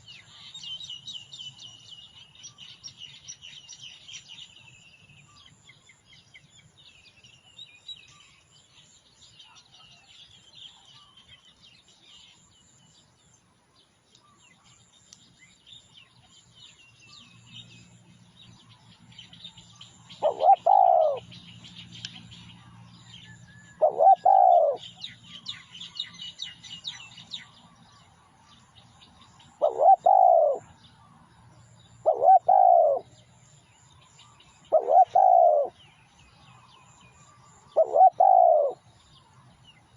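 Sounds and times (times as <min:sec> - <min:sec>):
small birds chirping: 0:00.0 - 0:39.9
dove cooing: 0:20.2 - 0:21.3, 0:23.7 - 0:24.9, 0:29.6 - 0:30.7, 0:32.0 - 0:33.1, 0:34.7 - 0:35.8, 0:37.7 - 0:38.8.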